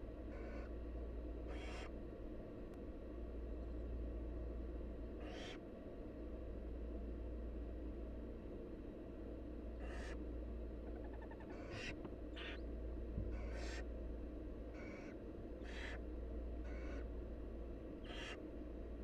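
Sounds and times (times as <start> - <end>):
steady low hum: 0.0 - 19.0
owl chicks hissing calls: 0.3 - 0.7, 1.5 - 1.9, 5.2 - 5.6, 9.8 - 10.2, 11.0 - 12.6, 13.3 - 13.8, 14.8 - 16.0, 16.6 - 17.0, 18.0 - 18.4.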